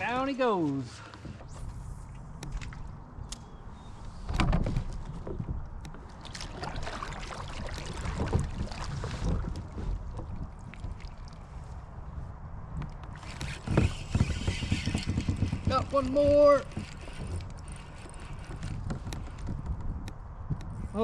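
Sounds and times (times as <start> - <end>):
water noise: 0.0 - 20.8
knocks and scrapes against kayak hull: 4.1 - 11.8, 12.8 - 20.9.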